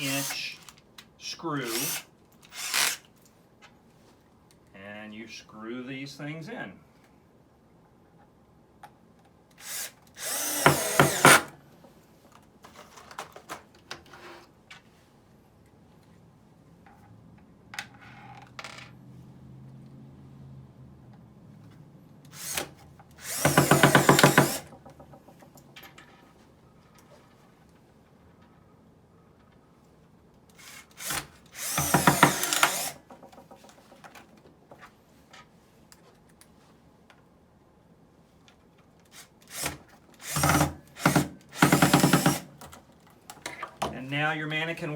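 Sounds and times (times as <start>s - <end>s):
power drill driving screw into wood: 0.0s - 0.8s, 1.6s - 3.1s, 9.5s - 11.6s, 22.3s - 24.8s, 30.5s - 33.1s, 39.1s - 42.6s.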